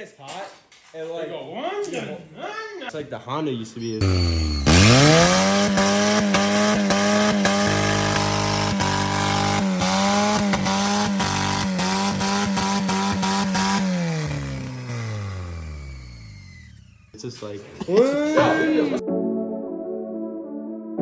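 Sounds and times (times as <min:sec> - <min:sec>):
small gasoline engine revving: 0:04.0 - 0:17.2.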